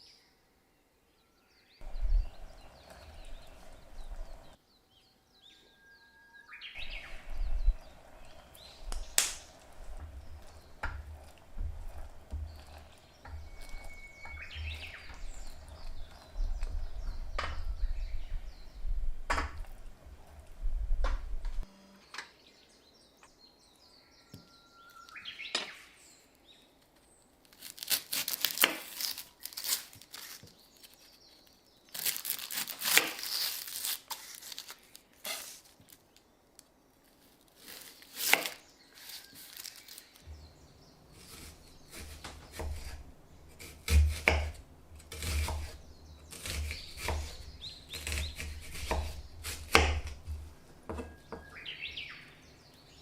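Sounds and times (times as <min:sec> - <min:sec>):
rustling and scraping: 0:06.8 - 0:18.6, 0:27.4 - 0:36.2, 0:37.0 - 0:51.6.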